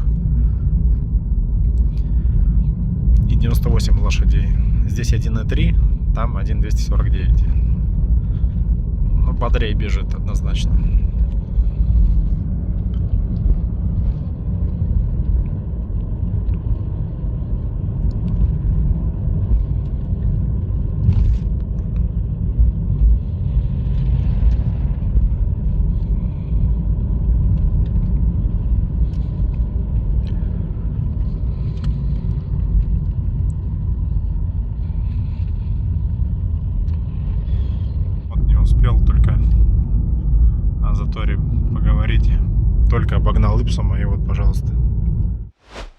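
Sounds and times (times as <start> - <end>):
car engine and tyre rumble: 0.0 - 45.9.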